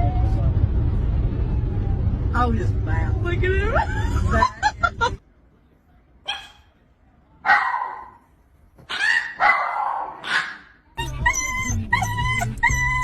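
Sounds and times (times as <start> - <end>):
continuous steady tone with hum: 0.0 - 7.5
dog barking: 6.3 - 6.7, 7.5 - 8.2, 8.9 - 10.8.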